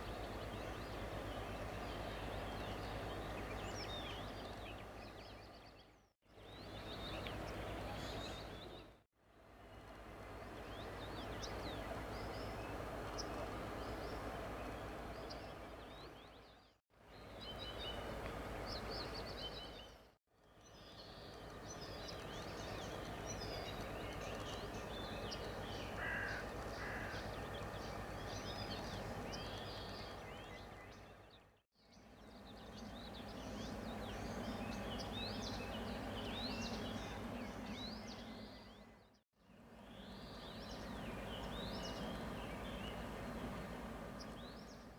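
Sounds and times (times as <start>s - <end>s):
low outdoor hum: 17.1s - 44.9s.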